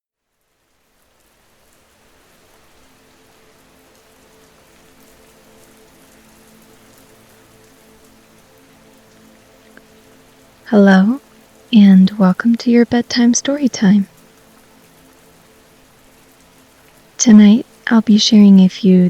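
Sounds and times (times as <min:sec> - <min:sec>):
steady rain falling: 0:00.2 - 0:19.0
faint steady tones: 0:05.0 - 0:19.0.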